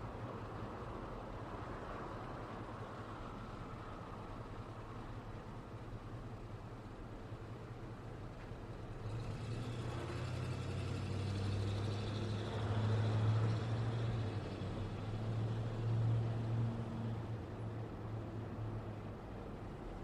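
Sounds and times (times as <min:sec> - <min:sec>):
passing vehicle engine hum: 0:08.7 - 0:20.0.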